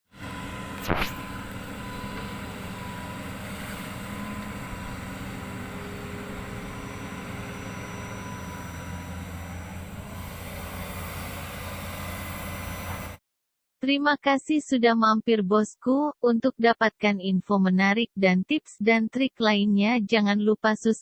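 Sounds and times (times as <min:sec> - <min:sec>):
excavator engine humming: 0:00.1 - 0:13.2
faint steady whine: 0:00.2 - 0:13.2.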